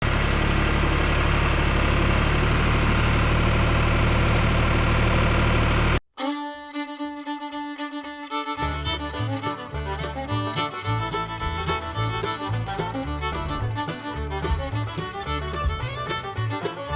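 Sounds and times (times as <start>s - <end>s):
engine running steadily: 0.0s - 6.0s, 8.6s - 16.9s
bluegrass fiddle music: 6.2s - 16.9s.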